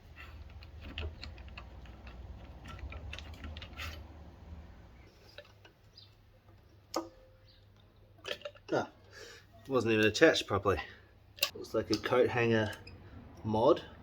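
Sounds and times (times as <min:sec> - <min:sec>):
metal parts and tools clicking: 0:00.0 - 0:04.2.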